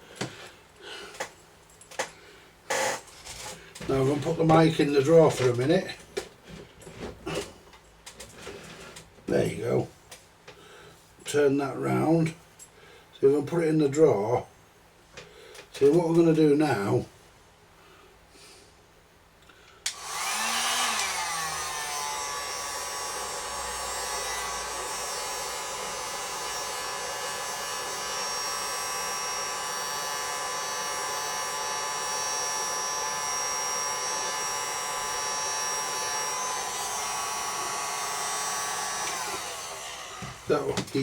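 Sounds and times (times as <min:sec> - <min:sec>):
heat gun fan blowing and whining: 0:02.0 - 0:06.0, 0:19.8 - 0:41.0.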